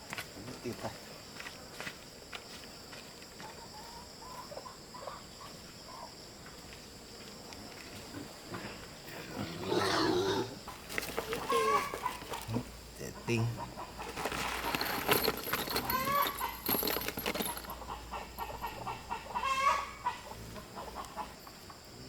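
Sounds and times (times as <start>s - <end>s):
insects buzzing: 0.0s - 22.0s
loud animal call: 9.3s - 10.6s, 11.3s - 12.6s, 17.9s - 20.6s.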